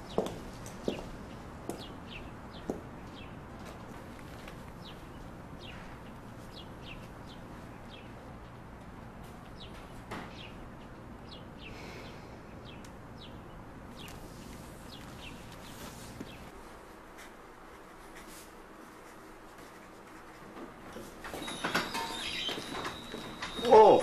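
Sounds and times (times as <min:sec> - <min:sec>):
footstep: 0:00.0 - 0:07.6, 0:14.0 - 0:24.0
small birds chirping: 0:00.0 - 0:08.6, 0:09.5 - 0:16.5.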